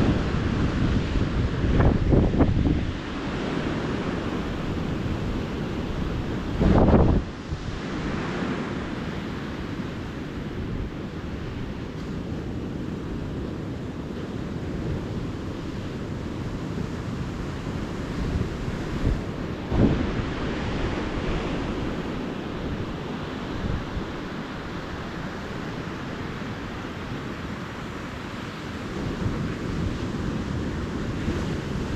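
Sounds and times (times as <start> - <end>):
ocean surf washing onto beach: 0.0 - 31.9
wind on microphone: 0.0 - 31.9.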